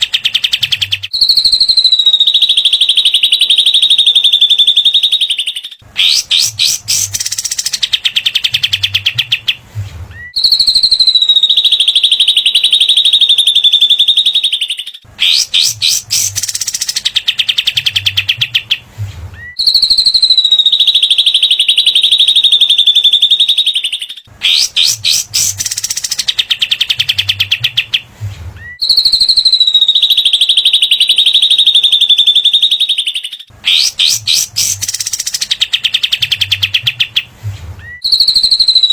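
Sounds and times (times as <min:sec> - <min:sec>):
bird rapid sharp ticking notes: 0:06.0 - 0:08.4, 0:15.2 - 0:17.7, 0:24.5 - 0:26.9, 0:33.7 - 0:36.1
bird high wavering trill: 0:15.2 - 0:17.1, 0:33.7 - 0:36.2.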